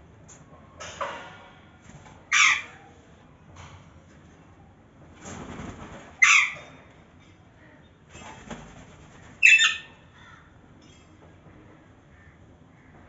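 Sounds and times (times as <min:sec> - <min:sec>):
parakeet squawking: 0:09.4 - 0:09.9.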